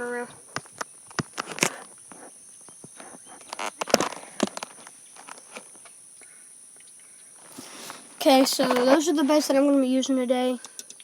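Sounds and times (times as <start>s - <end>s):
steady high-pitched hum: 0.0s - 11.0s
camera handling knocks and rustles: 8.4s - 9.0s.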